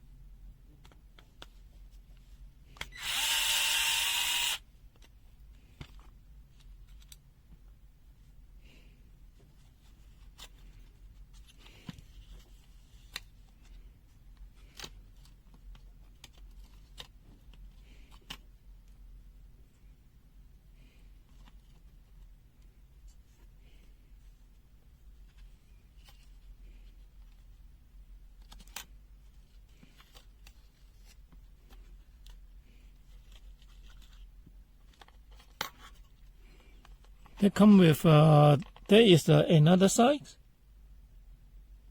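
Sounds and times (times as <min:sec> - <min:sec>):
small power tool motor: 0:02.9 - 0:04.6.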